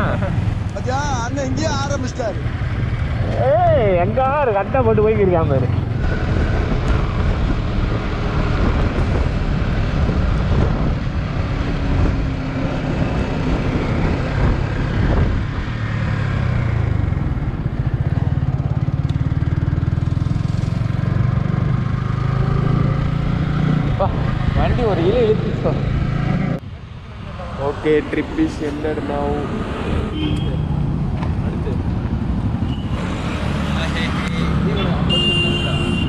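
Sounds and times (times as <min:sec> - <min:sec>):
noisy wind rush: 0:00.0 - 0:18.9.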